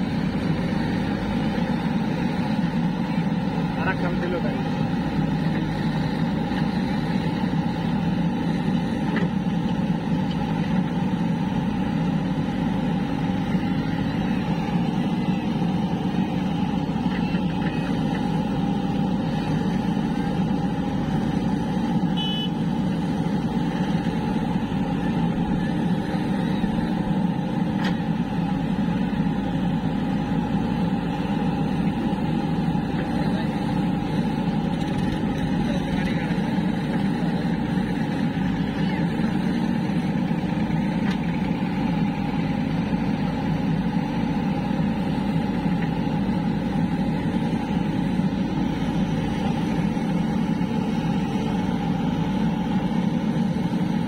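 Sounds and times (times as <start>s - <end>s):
diesel machinery engine drone: 0.0s - 54.0s.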